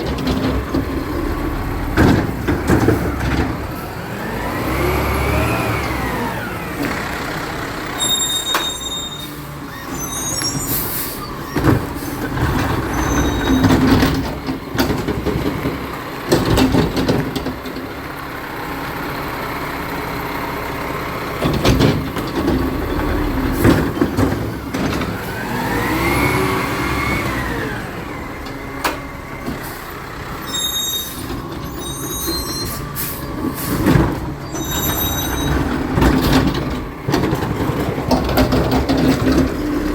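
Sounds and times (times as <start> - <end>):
sharp knocks and bangs: 0.0 - 3.8
truck engine revving: 0.0 - 8.1, 19.3 - 30.5, 31.1 - 39.9.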